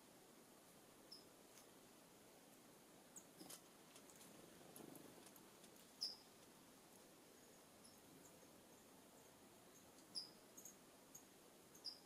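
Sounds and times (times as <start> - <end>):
small birds chip notes: 1.1 - 1.7, 3.1 - 4.3, 5.2 - 12.0.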